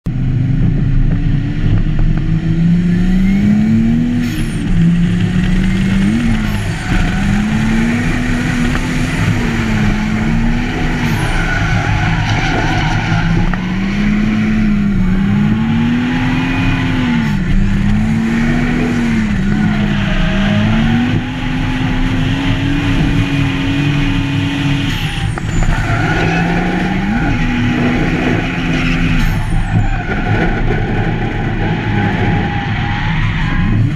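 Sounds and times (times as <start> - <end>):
car engine revving: 0.1 - 33.9
tyre squeal: 5.6 - 21.4, 24.6 - 33.9.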